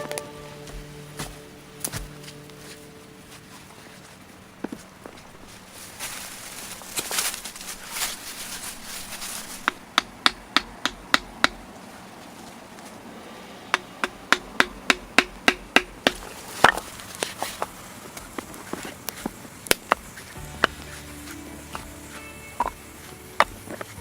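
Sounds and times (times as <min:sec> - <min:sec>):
hand tool striking wood: 0:09.6 - 0:11.6, 0:13.7 - 0:24.0.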